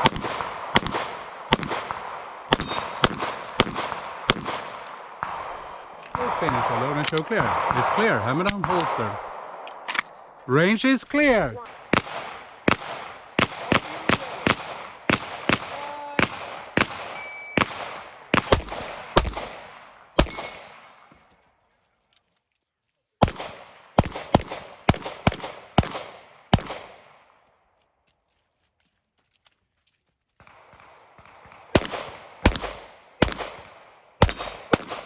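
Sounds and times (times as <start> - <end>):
pistol shots echoing: 0.0 - 10.4, 11.2 - 21.2, 23.2 - 27.4, 30.4 - 35.0.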